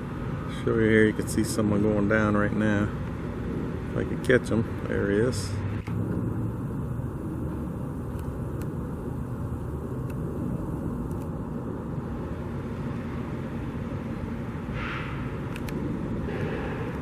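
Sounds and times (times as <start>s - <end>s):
faint constant hum: 0.0s - 17.0s
motor vehicle rumble: 0.0s - 17.0s.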